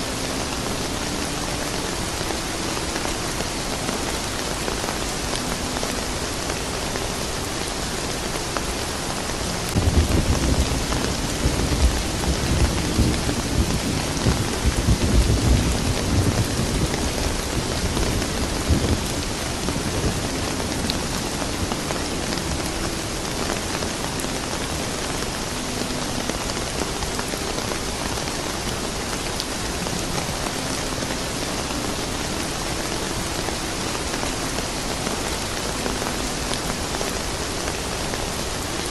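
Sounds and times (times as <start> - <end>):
steady soft rain: 0.0 - 38.9
thunder rumbling: 9.5 - 24.9.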